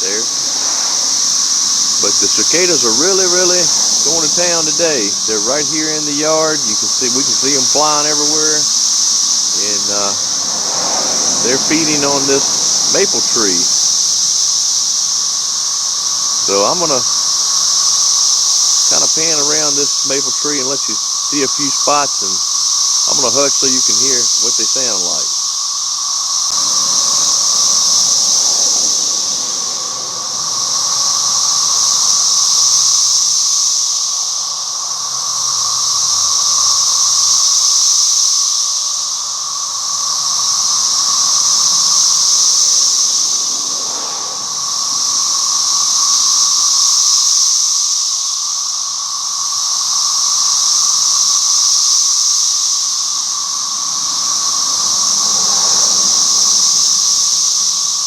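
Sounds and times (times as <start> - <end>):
steady lower drone: 0.0 - 25.3, 26.3 - 33.2
cicadas buzzing: 0.0 - 58.0.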